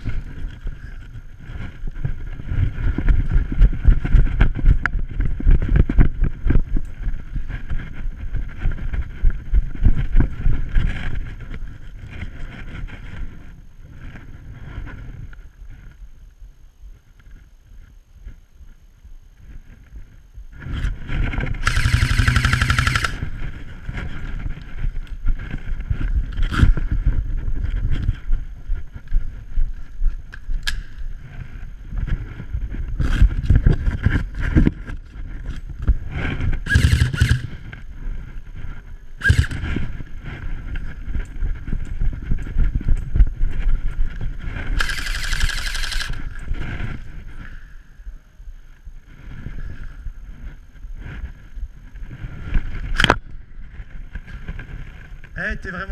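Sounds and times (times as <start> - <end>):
airsoft guns firing bursts: 21.6 - 23.3, 36.7 - 37.6, 39.2 - 39.8, 44.8 - 46.3.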